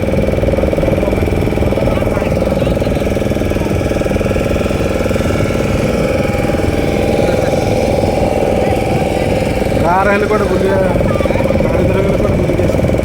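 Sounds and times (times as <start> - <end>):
motorboat engine running: 0.0 - 13.0.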